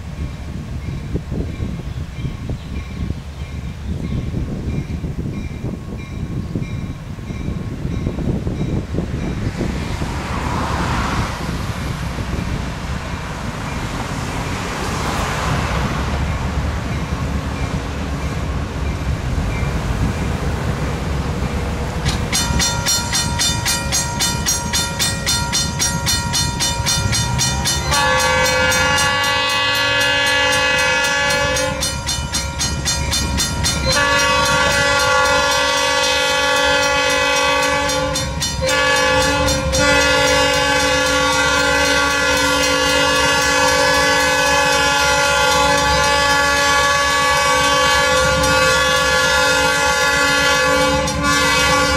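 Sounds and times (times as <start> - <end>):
running train: 0.0 - 51.9
locomotive air horn blasts: 26.4 - 32.1, 33.2 - 51.9.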